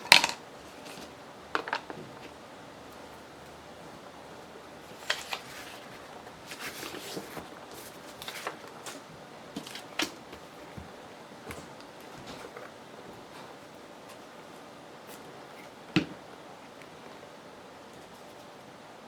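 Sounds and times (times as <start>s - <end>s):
paper rustling: 4.8s - 15.8s.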